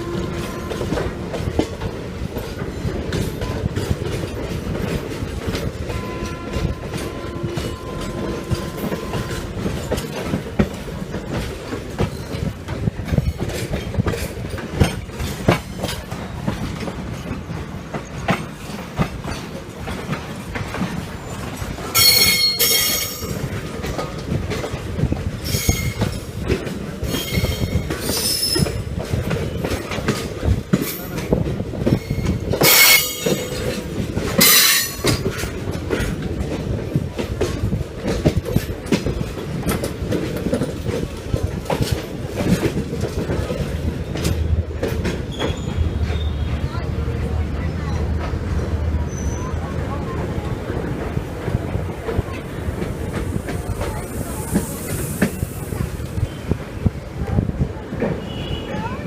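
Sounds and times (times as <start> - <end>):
train coach rumble and rail clatter: 0.0 - 59.0
high-pitched wheel squeals: 45.3 - 46.6.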